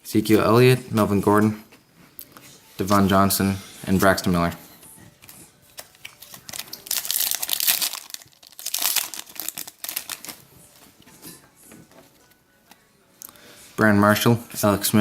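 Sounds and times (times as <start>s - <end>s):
plastic wrapper crinkling: 5.7s - 10.5s.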